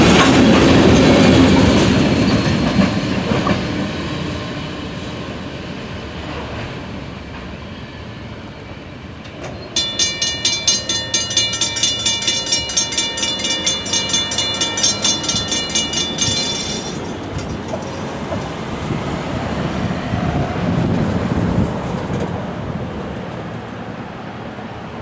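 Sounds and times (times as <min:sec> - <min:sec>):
freight train rumble: 0:00.0 - 0:25.0
rapid ringing ding: 0:09.4 - 0:18.2.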